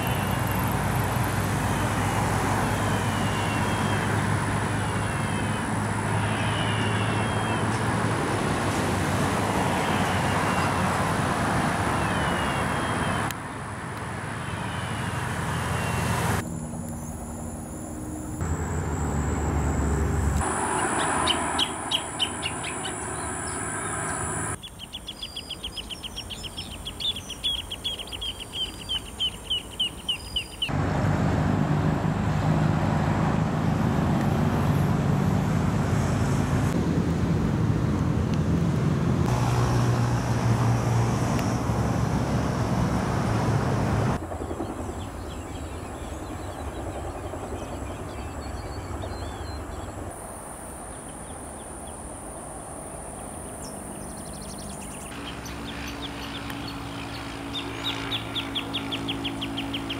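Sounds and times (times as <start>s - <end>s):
birds calling: 0.0s - 1.9s, 2.6s - 8.0s, 20.4s - 30.8s, 53.5s - 59.9s.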